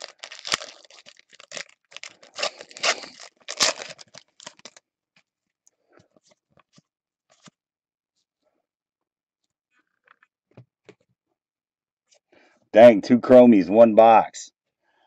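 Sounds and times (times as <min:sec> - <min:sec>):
card pack wrapper tearing: 0:00.0 - 0:04.8.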